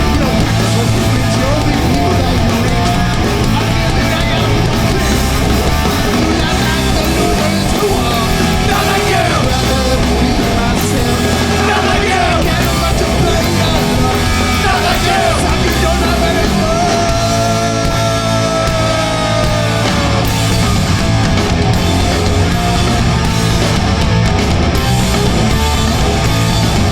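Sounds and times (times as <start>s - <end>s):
punk band playing live: 0.0s - 26.9s
person yelling vocals: 11.2s - 20.3s.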